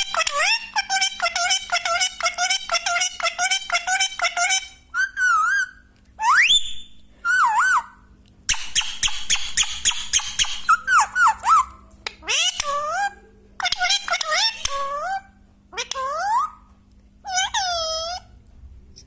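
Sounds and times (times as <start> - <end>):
parrot chirping and whistling: 0.0 - 15.2.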